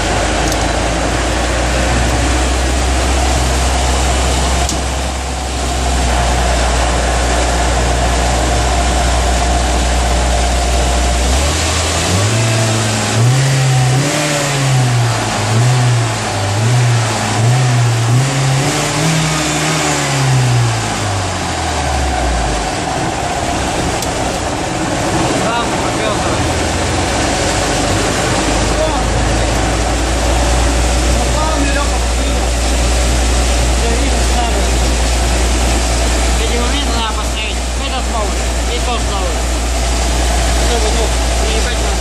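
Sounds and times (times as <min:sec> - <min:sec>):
boat engine idling and revving: 0:00.0 - 0:42.0.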